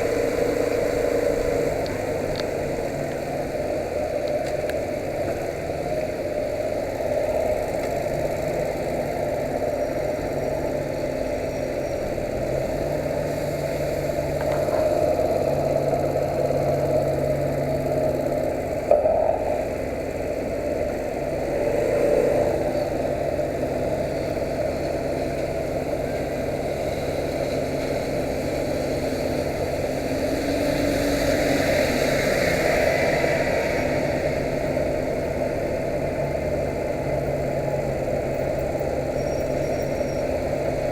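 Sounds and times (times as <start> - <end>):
motorcycle engine running: 0.0 - 32.2.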